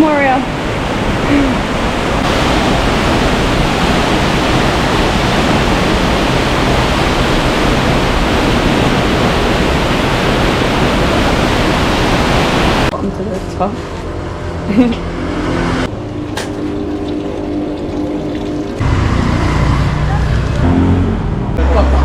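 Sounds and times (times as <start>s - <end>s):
waterfall rushing: 0.4s - 12.9s.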